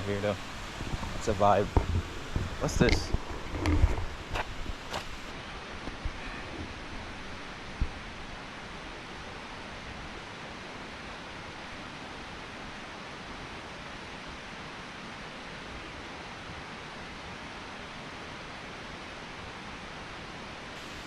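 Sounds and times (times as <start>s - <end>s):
mountain creek rushing: 0.0s - 21.0s.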